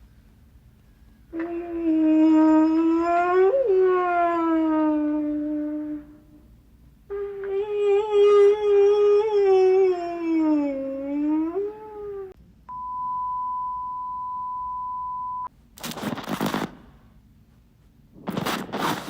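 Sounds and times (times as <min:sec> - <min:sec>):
wavering wail: 0:01.4 - 0:06.4, 0:07.1 - 0:12.4
steady electronic beep: 0:12.7 - 0:15.5.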